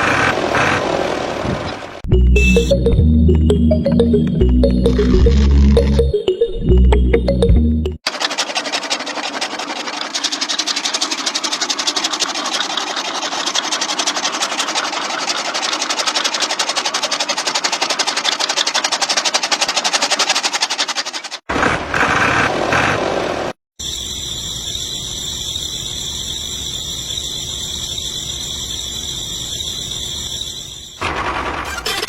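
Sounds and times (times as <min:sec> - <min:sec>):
small electric motor rattling: 0:08.0 - 0:21.5.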